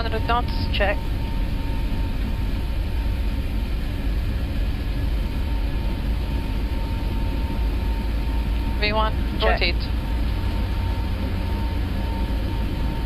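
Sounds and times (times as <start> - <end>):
jet engines rumbling: 0.0 - 13.0
wheels rumbling on runway: 0.0 - 13.0
faint high tone: 9.4 - 9.8.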